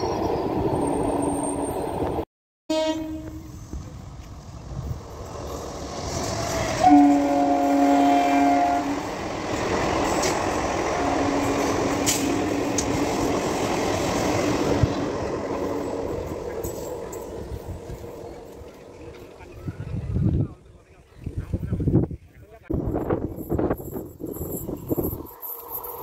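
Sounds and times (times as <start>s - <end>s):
train horn blast: 2.7s - 3.6s, 6.7s - 9.2s, 10.9s - 12.9s
train wheels rumbling and rattling: 3.2s - 20.6s, 21.2s - 26.0s.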